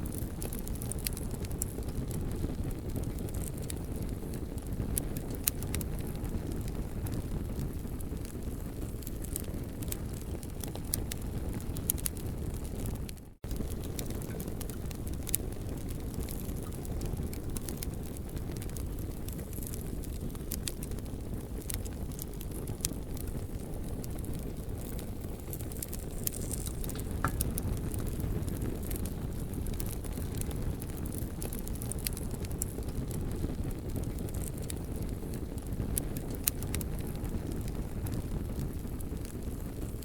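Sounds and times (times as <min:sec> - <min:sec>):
burning wood popping: 0:00.0 - 0:40.0
campfire crackling: 0:00.0 - 0:40.0.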